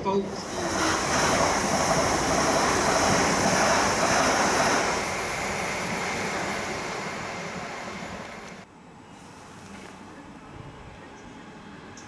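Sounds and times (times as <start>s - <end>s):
train rushing past: 0.0s - 8.6s.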